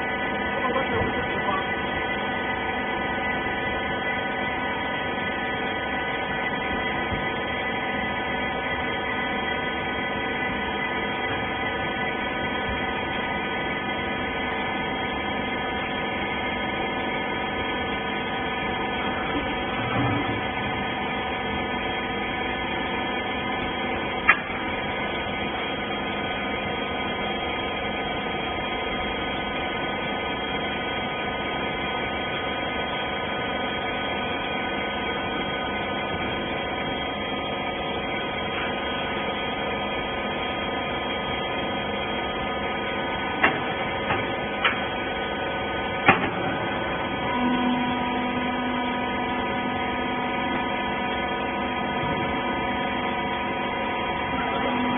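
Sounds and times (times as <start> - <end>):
hydraulic pump motor humming: 0.0 - 54.9
sharp clicks and knocks: 43.4 - 44.8.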